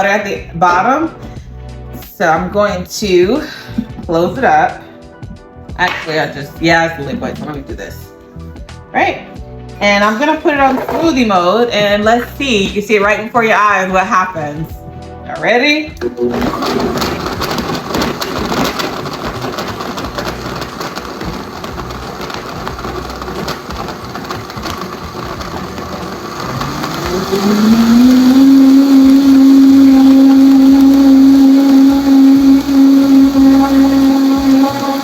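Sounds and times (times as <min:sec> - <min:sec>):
blender motor whining: 0:16.0 - 0:35.0.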